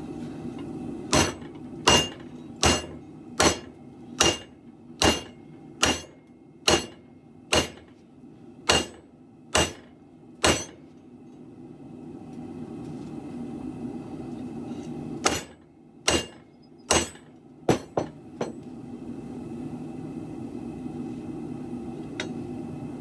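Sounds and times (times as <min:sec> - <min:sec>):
hammer striking metal on anvil: 0:01.1 - 0:07.9, 0:08.7 - 0:09.0, 0:09.6 - 0:10.8, 0:15.2 - 0:18.6.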